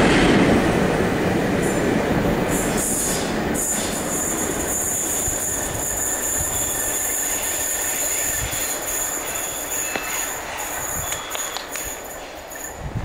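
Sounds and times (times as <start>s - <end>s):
train engines and wheels rumbling: 0.0s - 13.0s.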